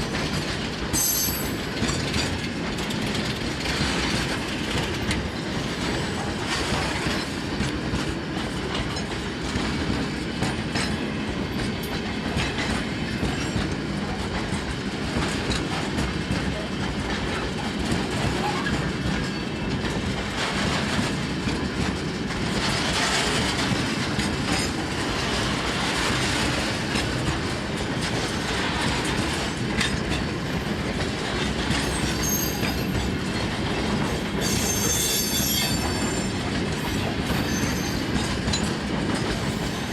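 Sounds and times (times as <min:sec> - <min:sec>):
train wheels clacking over joints: 0:00.0 - 0:39.9
high wheel squeal: 0:34.4 - 0:38.2.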